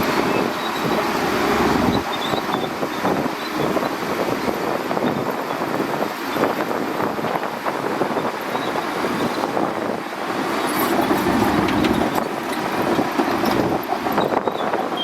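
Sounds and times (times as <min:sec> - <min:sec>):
bulldozer diesel engine: 0:00.0 - 0:15.0
tracks clattering: 0:10.5 - 0:15.0.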